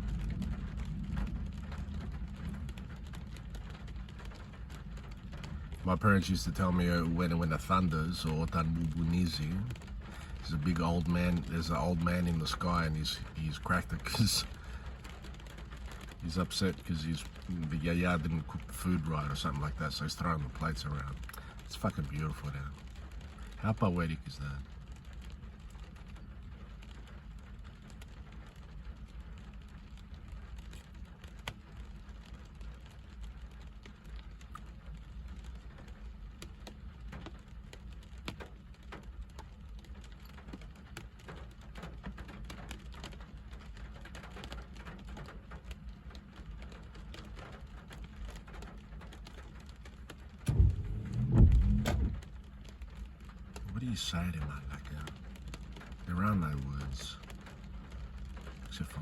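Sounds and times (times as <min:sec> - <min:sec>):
low rumble: 0:00.0 - 0:05.9, 0:50.4 - 0:53.9
raindrop ticks: 0:00.0 - 0:59.0
steady rain: 0:00.0 - 0:59.0
loud low-pitched burst: 0:50.5 - 0:52.4.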